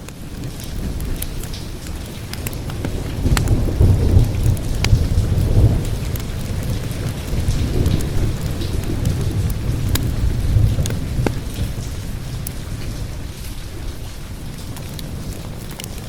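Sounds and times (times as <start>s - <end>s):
crackling fire: 0.0s - 16.0s
steady rain: 0.0s - 16.0s
rolling thunder: 0.8s - 16.0s.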